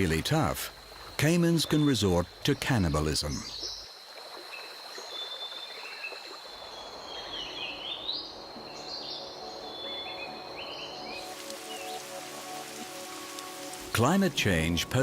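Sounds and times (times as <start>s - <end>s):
soft hiss: 10.6s - 15.0s.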